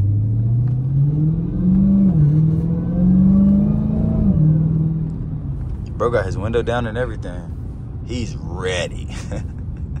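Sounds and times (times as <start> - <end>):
car engine accelerating: 0.0 - 6.0.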